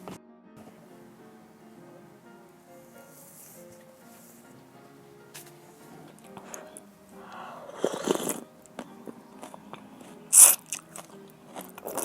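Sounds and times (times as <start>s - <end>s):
loud sharp crunch: 7.7s - 9.6s
crunching and chewing: 7.7s - 12.0s.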